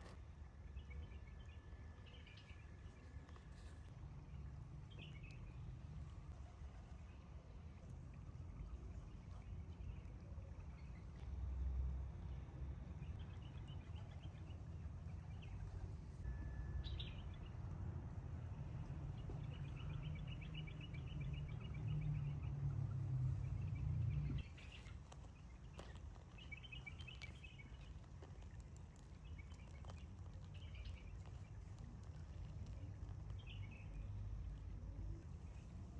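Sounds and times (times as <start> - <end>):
small birds trilling: 23.3 - 35.8.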